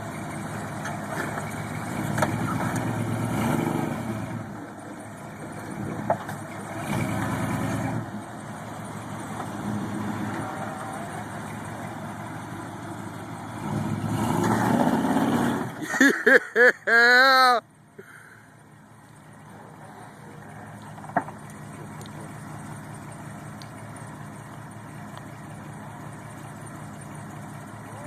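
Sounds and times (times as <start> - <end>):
truck engine revving: 0.0 - 17.6, 18.8 - 28.0.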